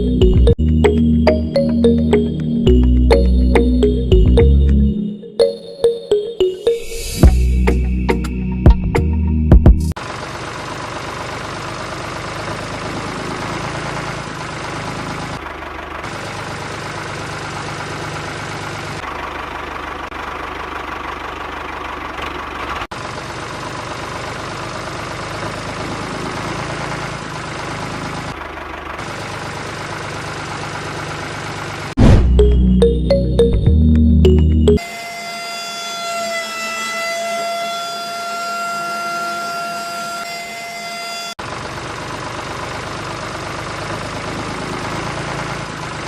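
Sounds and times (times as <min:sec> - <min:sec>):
engine running throb: 0:08.7 - 0:34.8.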